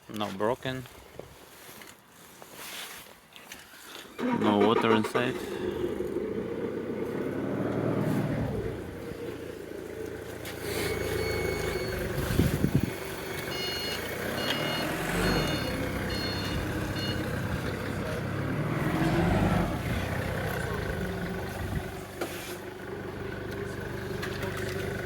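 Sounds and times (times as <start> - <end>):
car engine idling: 5.0 - 25.0
reversing alarm beeping: 10.5 - 17.9.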